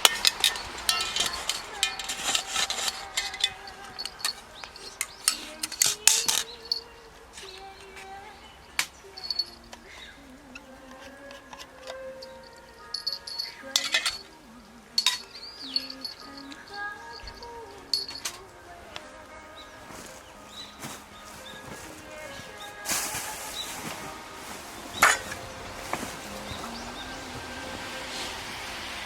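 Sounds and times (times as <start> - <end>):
wood fire popping and crackling: 0.0 - 11.9
faint wavering whine: 0.0 - 29.0.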